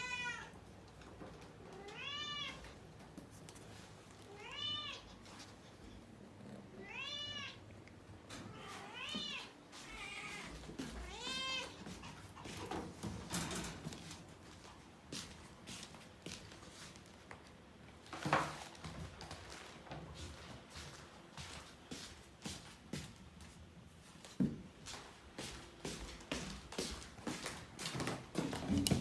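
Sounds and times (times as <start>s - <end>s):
cat meowing: 0.0s - 0.6s, 1.7s - 2.7s, 4.3s - 5.2s, 6.8s - 7.6s, 8.5s - 11.8s.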